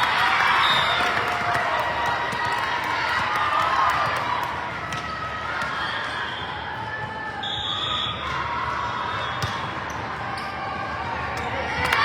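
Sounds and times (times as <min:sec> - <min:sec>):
murmur of spectators: 0:00.0 - 0:12.0
volleyball hits and bounces: 0:09.3 - 0:09.8, 0:11.3 - 0:12.0.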